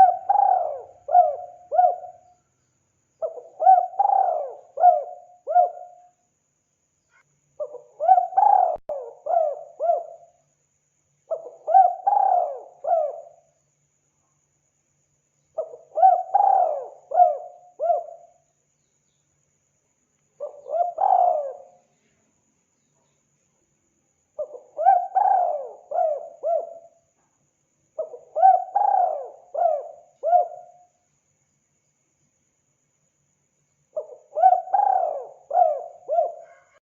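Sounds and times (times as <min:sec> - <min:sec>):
dove cooing: 0:00.0 - 0:02.3, 0:03.2 - 0:06.1, 0:07.6 - 0:10.3, 0:11.3 - 0:13.5, 0:15.6 - 0:18.3, 0:20.4 - 0:21.8, 0:24.4 - 0:27.0, 0:28.0 - 0:30.8, 0:34.0 - 0:36.8.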